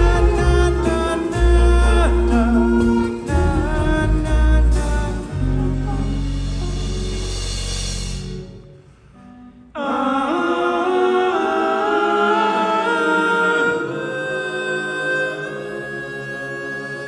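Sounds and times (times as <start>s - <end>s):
live rock band: 0.0s - 8.7s
vocal harmonies: 0.0s - 17.0s.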